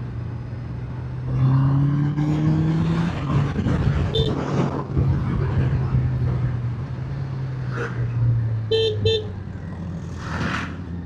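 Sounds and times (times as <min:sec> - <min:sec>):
rush of wind noise: 0:02.7 - 0:06.8.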